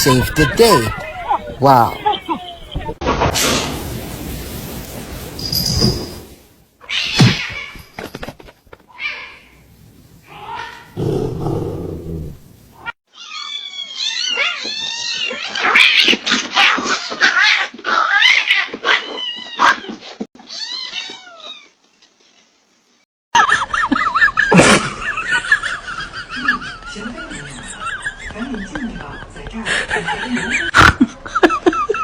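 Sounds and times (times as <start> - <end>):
cats caterwauling: 13.2 - 21.7.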